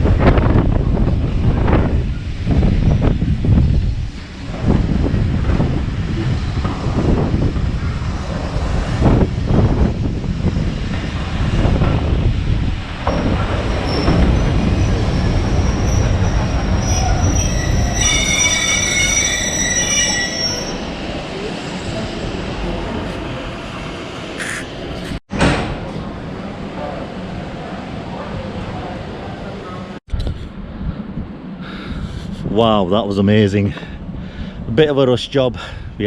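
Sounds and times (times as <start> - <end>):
heavy train clunks: 0.0 - 20.1, 20.9 - 30.0
train rumbling on track: 0.0 - 36.0
train wheels squealing: 13.2 - 21.0.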